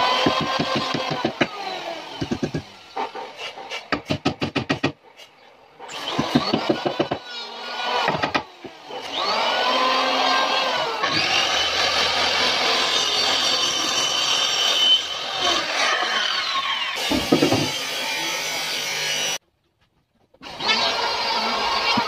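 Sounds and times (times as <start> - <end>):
power tool whining: 5.8 - 19.4, 20.4 - 22.0.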